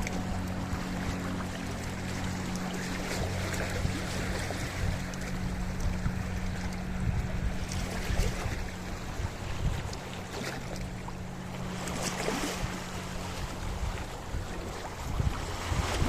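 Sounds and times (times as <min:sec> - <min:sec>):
low hum: 0:00.0 - 0:16.0
waves washing over rocks: 0:11.7 - 0:16.0.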